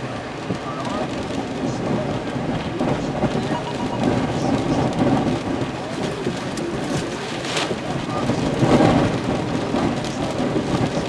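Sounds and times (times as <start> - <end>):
driving rain: 0.0 - 11.0
gusting wind: 0.0 - 11.0
wind buffeting microphone: 0.0 - 11.0.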